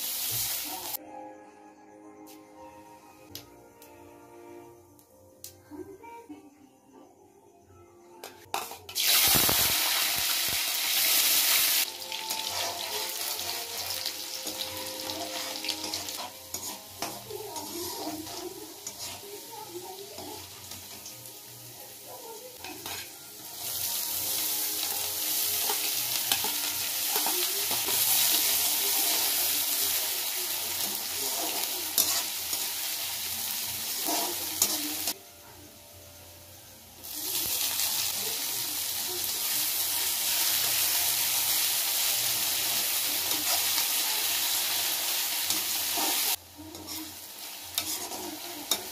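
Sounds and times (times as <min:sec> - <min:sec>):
garlic sizzling in hot oil: 0:00.0 - 0:01.0, 0:08.5 - 0:48.9
steel spoon scraping and clinking: 0:14.4 - 0:19.4, 0:45.5 - 0:48.9.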